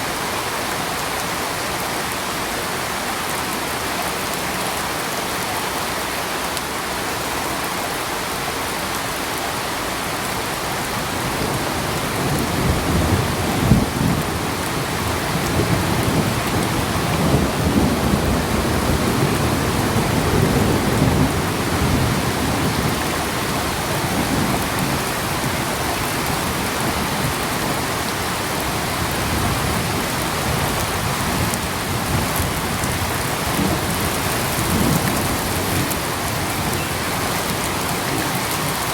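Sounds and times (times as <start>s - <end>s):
rain hiss: 0.0s - 38.9s
thunder rumbling: 11.2s - 38.9s.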